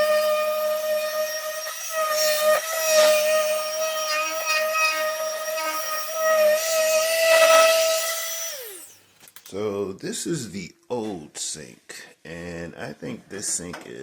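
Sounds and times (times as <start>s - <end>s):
small electric motor whining: 0.0s - 9.1s.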